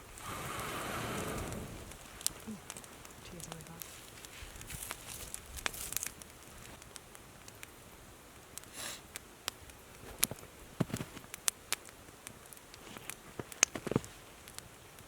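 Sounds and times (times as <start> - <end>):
campfire crackling: 0.0 - 15.0
sharp pops of fire: 0.0 - 15.0.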